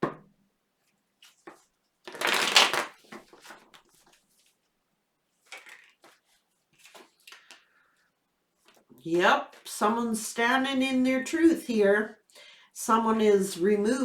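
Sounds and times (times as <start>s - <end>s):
cards being riffle shuffled: 1.2s - 4.5s, 5.4s - 7.6s.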